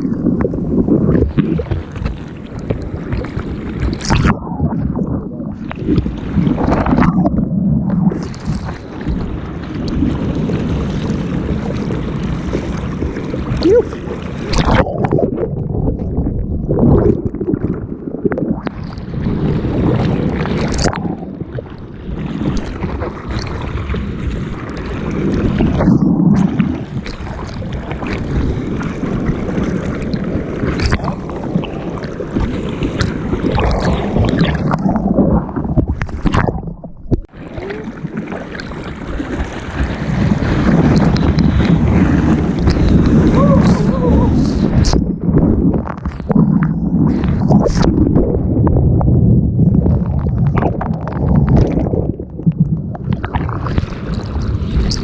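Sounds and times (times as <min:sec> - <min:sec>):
seawater rushing and splashing: 0:00.0 - 0:55.0
wind buffeting microphone: 0:00.0 - 0:55.0.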